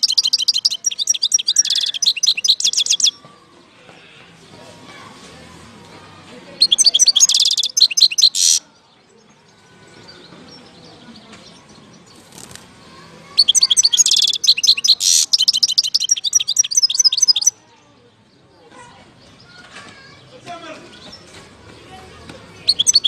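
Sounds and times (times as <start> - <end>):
finch twittering and trilling: 0.0 - 3.2, 6.6 - 8.6, 13.4 - 17.6, 22.6 - 23.0.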